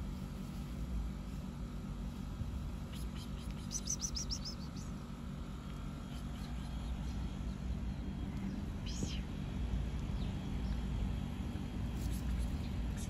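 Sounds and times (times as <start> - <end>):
low background rumble: 0.0 - 13.0
small bird chirping: 2.8 - 5.2, 6.0 - 9.4.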